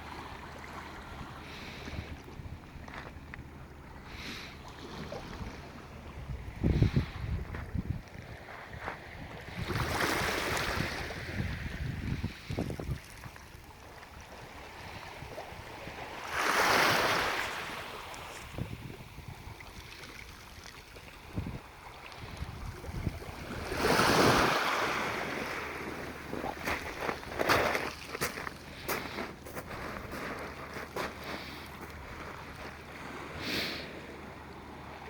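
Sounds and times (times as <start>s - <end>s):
waves breaking on shore: 0.0s - 35.0s
wind buffeting microphone: 5.2s - 13.1s, 18.4s - 19.8s, 21.3s - 24.6s.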